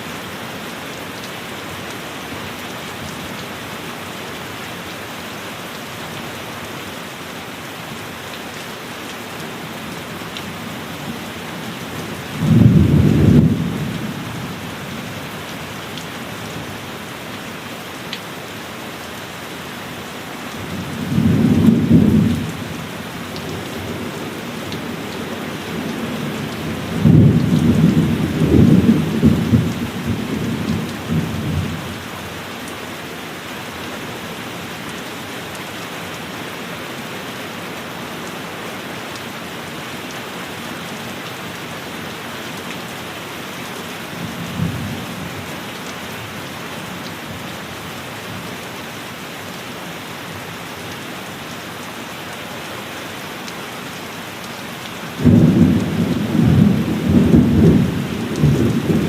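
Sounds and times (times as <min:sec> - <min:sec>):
heavy rain: 0:00.0 - 0:59.0
thunder rumbling: 0:12.4 - 0:14.1, 0:55.2 - 0:59.0.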